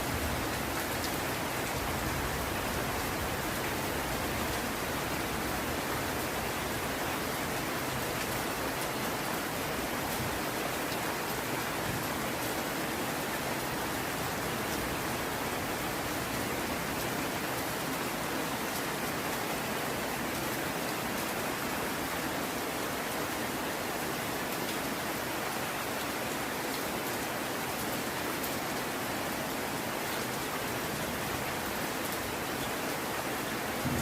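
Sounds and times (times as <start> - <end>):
heavy rain falling: 0.0 - 34.0.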